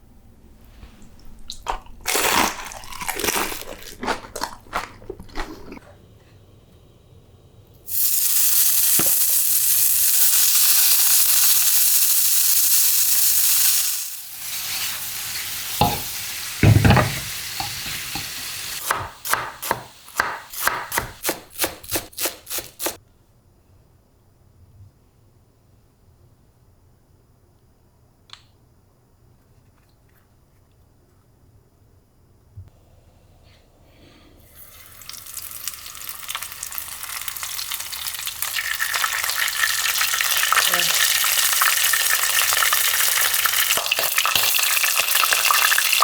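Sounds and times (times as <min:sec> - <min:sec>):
crisp crunches: 0:01.6 - 0:05.8
oil crackling: 0:07.9 - 0:16.7, 0:34.8 - 0:46.0
food sizzling in hot oil: 0:07.9 - 0:21.3, 0:34.4 - 0:46.0.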